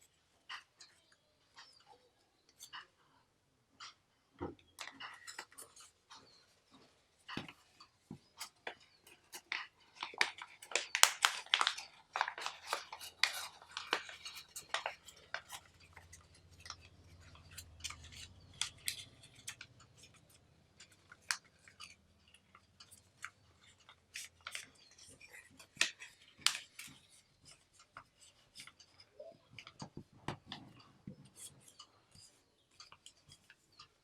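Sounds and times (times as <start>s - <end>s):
paper being folded and creased: 9.3s - 22.0s, 23.7s - 29.9s.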